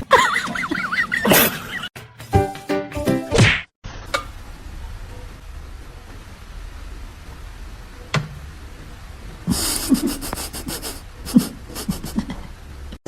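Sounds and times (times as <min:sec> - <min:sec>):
pet breathing hard: 0:09.5 - 0:12.2.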